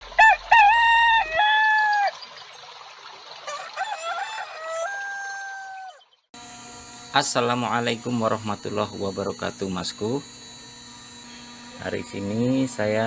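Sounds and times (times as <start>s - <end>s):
rooster crowing: 0.2s - 2.1s, 3.5s - 6.0s.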